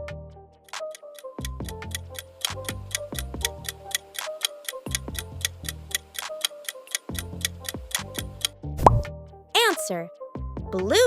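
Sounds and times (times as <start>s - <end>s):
light background music: 0.0s - 11.0s
clock ticking quickly: 0.7s - 8.5s.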